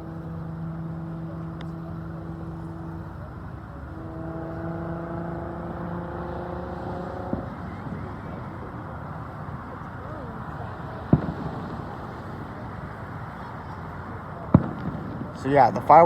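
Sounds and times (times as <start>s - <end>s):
steady mechanical hum: 0.0s - 4.7s
outdoor background noise: 0.0s - 16.0s
faint sharp crack: 11.1s - 12.0s, 14.5s - 15.3s.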